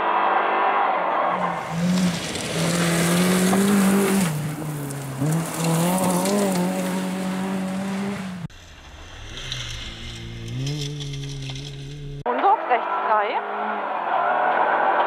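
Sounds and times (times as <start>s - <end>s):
rally car engine pulling hard: 1.3s - 15.0s
tyres on gravel hiss: 1.4s - 10.2s.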